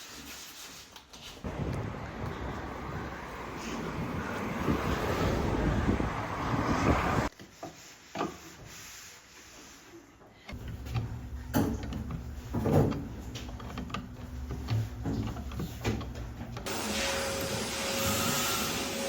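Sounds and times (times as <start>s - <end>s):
wooden knocks and handling: 10.6s - 16.7s.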